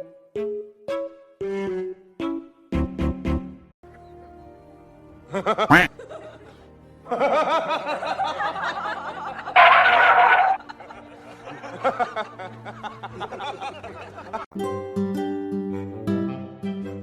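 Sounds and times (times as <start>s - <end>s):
person laughing: 5.4s - 6.2s.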